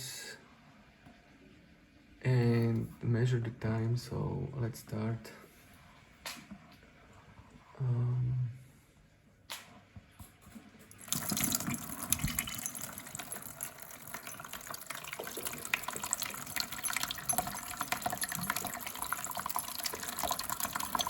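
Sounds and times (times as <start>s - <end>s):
water pouring into bucket: 10.9s - 21.0s.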